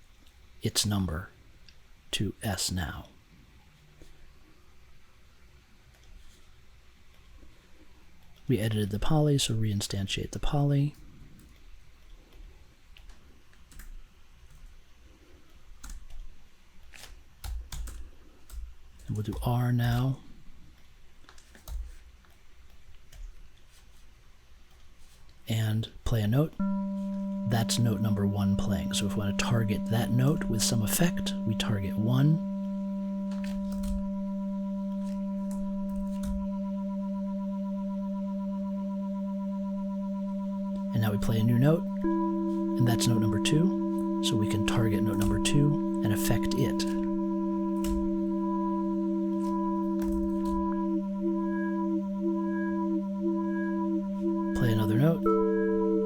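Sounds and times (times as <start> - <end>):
computer keyboard and mouse clicks: 16.9 - 19.1
sustained low synthesizer tone: 26.6 - 56.0.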